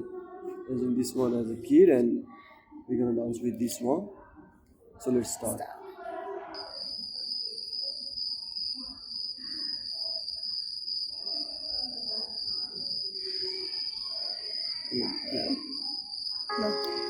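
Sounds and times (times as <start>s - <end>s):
faint murmuring voices: 0.0s - 8.2s, 11.1s - 17.0s
high-pitched tone: 16.5s - 17.0s.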